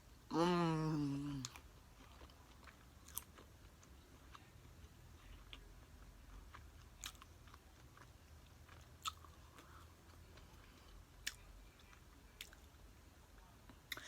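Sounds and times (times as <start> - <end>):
chewing crunchy food: 1.4 - 12.8.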